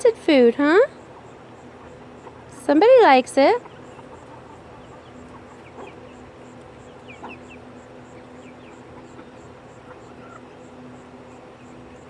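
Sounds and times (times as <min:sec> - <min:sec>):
chickens chirping and peeping: 0:00.0 - 0:12.0
steady low hum: 0:00.0 - 0:12.0.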